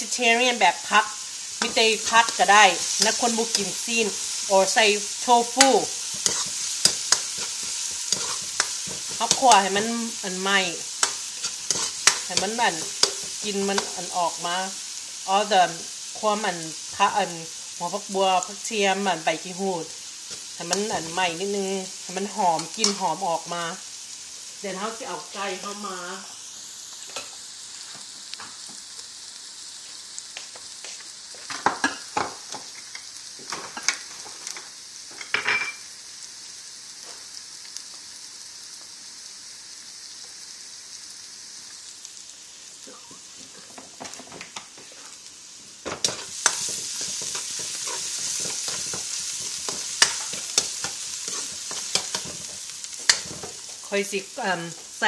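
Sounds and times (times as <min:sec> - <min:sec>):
aromatics sizzling in hot oil: 0:00.0 - 0:55.0
spatula stirring in a wok: 0:00.1 - 0:18.0, 0:18.6 - 0:23.2, 0:43.5 - 0:54.0.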